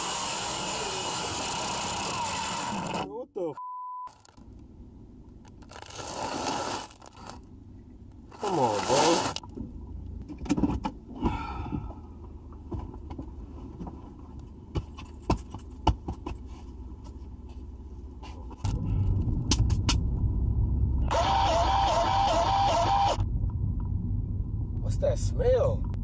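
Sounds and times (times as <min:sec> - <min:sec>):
car engine starting and idling: 0:17.2 - 0:26.0.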